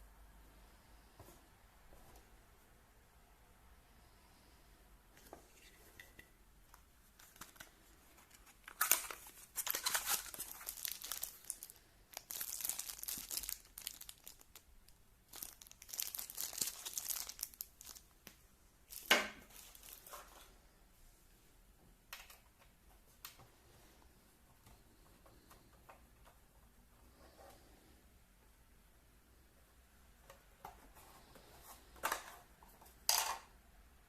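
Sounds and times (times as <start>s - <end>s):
packaging torn and crinkled: 8.6s - 14.6s, 15.3s - 18.0s.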